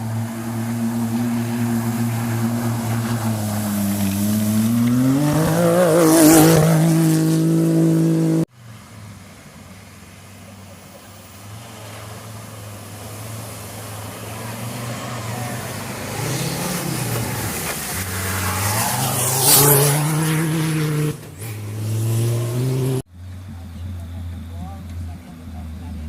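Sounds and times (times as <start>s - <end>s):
racing engine revving past: 0.0s - 8.5s, 11.4s - 23.1s.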